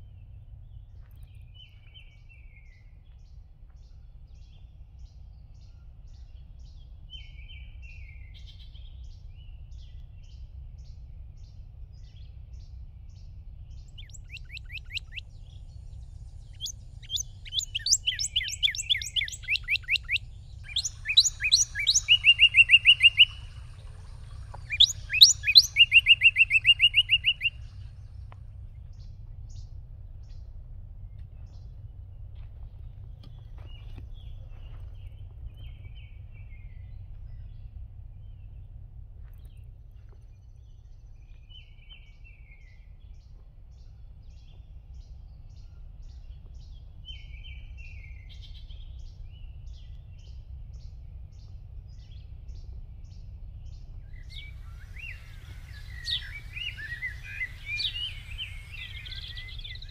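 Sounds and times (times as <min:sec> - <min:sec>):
low steady rumble: 0:00.0 - 0:59.9
songbird trilling: 0:13.7 - 0:29.6, 0:53.6 - 0:59.9.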